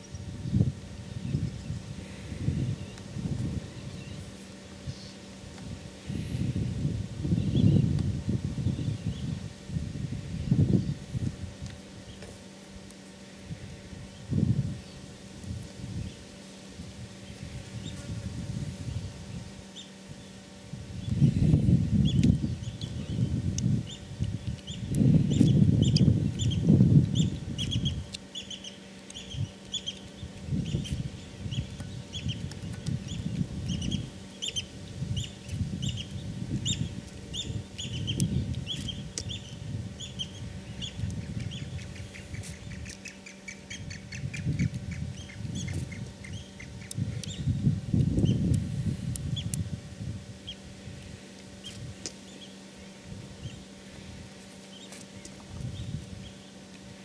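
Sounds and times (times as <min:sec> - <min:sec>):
low rumbling noise: 0:00.0 - 0:57.0
birds chirping: 0:18.8 - 0:47.6, 0:51.6 - 0:53.8, 0:54.6 - 0:56.7.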